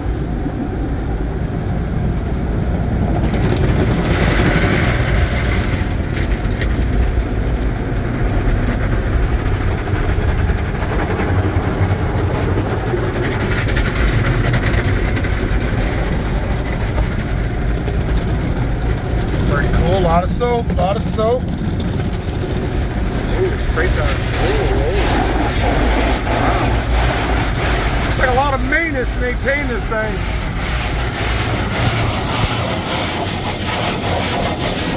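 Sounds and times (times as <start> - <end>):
car wash low rumble: 0.0 - 34.9
water spray hissing on vehicle: 19.8 - 34.9.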